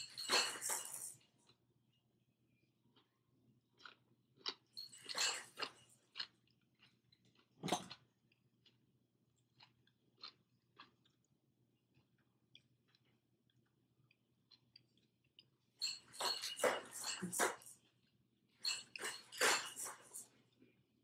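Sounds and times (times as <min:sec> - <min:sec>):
person chewing: 0:02.9 - 0:16.0.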